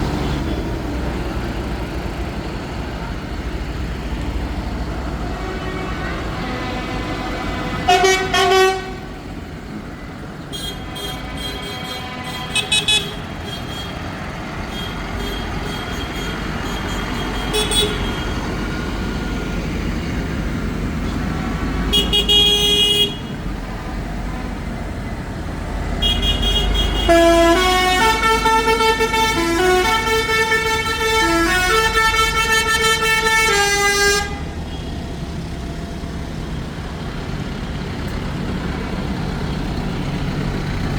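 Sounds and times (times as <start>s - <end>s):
tractor engines running: 0.0s - 40.9s
horn blasts: 5.2s - 9.1s, 10.5s - 18.5s, 21.9s - 24.6s, 26.0s - 35.0s
horn playing a tune: 26.0s - 34.5s.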